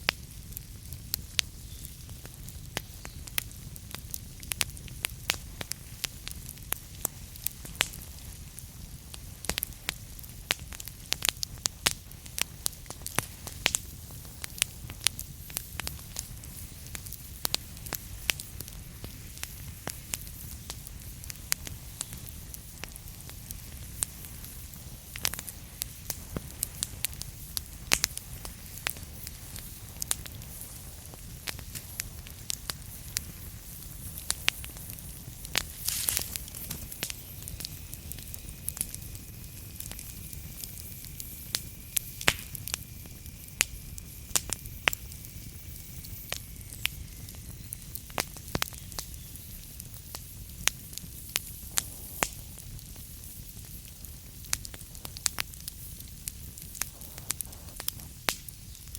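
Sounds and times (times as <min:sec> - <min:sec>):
wood fire crackling: 0:00.0 - 0:58.9
faint thin whistle: 0:35.6 - 0:50.4.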